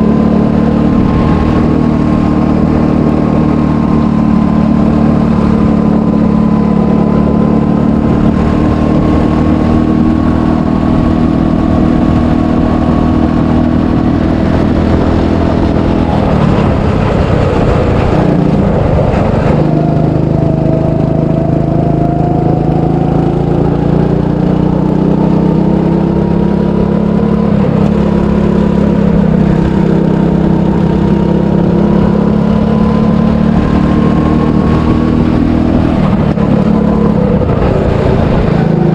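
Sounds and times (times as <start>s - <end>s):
go-kart engine running: 0.0s - 38.9s.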